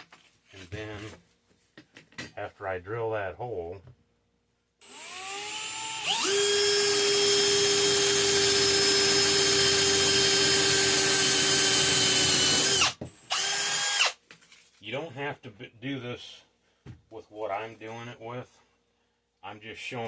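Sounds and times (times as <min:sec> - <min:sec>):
electric drill boring metal: 0:04.8 - 0:14.2.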